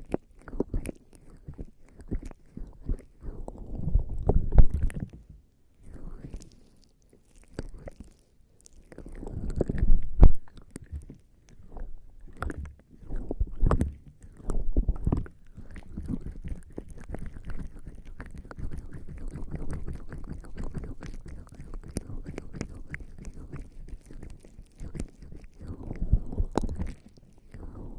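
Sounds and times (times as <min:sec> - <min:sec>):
skin rubbing against microphone: 0:00.0 - 0:27.9
small crackles: 0:00.0 - 0:27.9.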